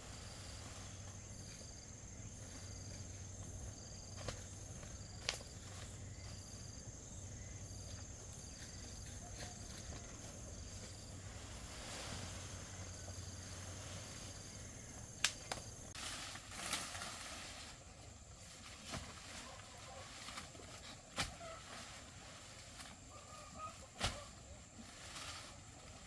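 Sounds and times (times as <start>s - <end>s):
insect chirp: 0.0s - 26.0s
insects trilling: 0.0s - 26.0s
sharp clicks: 15.2s - 15.6s.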